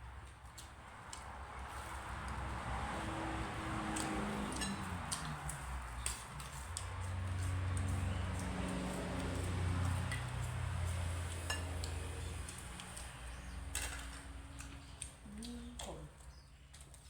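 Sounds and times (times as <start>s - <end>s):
spoon and dishes clinking: 4.5s - 5.3s, 11.3s - 12.3s, 13.7s - 14.3s.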